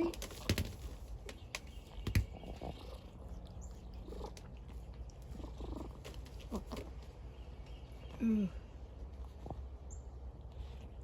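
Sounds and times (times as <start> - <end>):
cat purring: 2.3 - 6.8.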